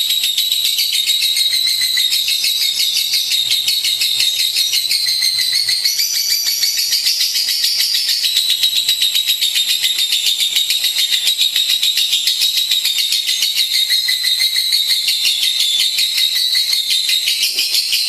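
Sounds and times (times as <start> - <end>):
lovebird chattering song: 0.0 - 18.0.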